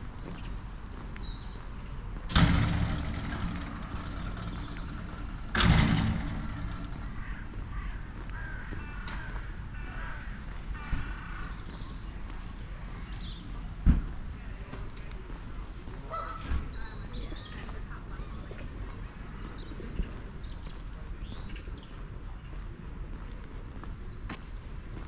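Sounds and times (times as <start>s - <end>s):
loud harsh bird calls: 2.9s - 13.1s.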